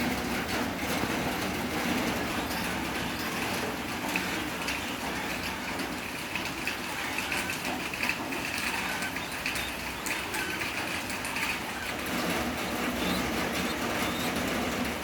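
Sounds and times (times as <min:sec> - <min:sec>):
fledgling bird begging chirps: 0:12.6 - 0:14.5.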